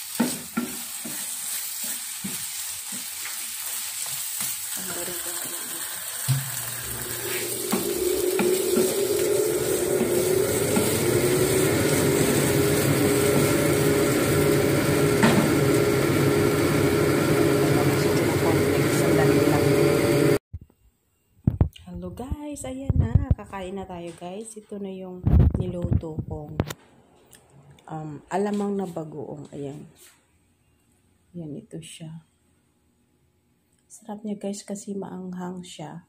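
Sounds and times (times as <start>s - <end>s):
shrimp paste sizzling in a pan: 0.0s - 15.1s
mechanical hum: 0.0s - 35.3s.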